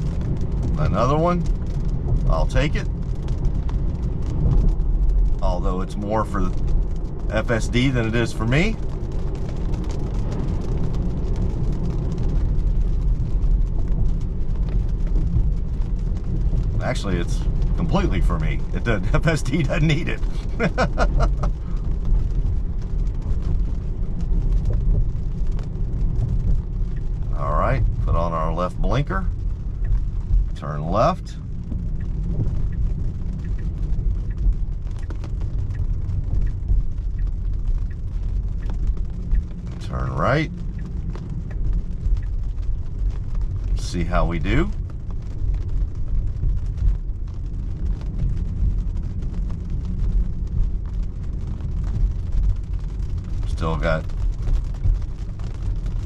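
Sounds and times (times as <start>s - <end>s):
road and tyre noise in car: 0.0s - 56.0s
faint ticks: 29.3s - 39.9s, 40.5s - 43.8s.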